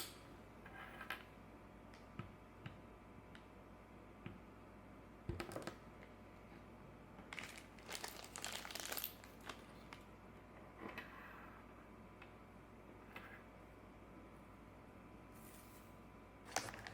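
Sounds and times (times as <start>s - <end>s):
crinkling and rustling: 7.2s - 10.1s, 16.5s - 16.9s.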